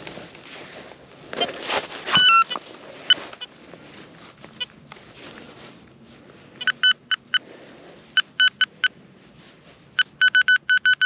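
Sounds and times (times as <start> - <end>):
metal detector short beeps: 1.4 - 3.5, 6.6 - 7.4, 8.2 - 8.9, 10.0 - 11.0.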